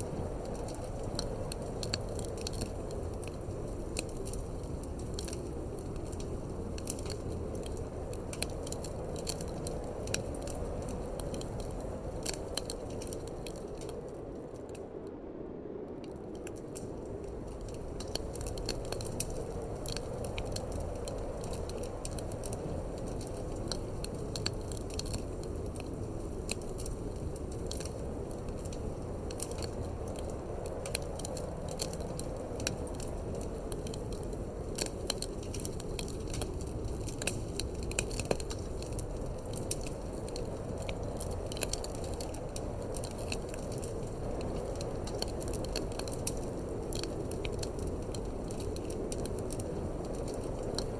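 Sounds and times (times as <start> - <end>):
wood fire crackling and popping: 0.0 - 15.0, 15.9 - 50.9.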